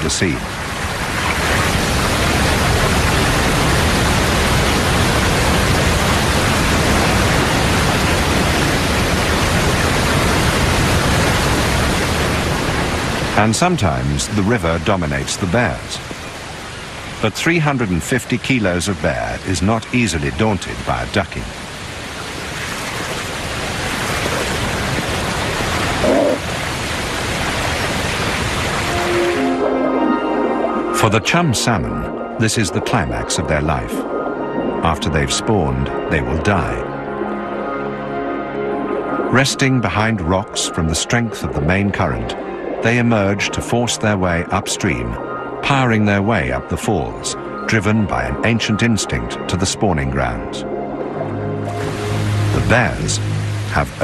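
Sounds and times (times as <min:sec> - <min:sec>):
fast-flowing river water: 0:00.0 - 0:35.6, 0:49.1 - 0:54.0
river rushing over falls: 0:51.7 - 0:54.0.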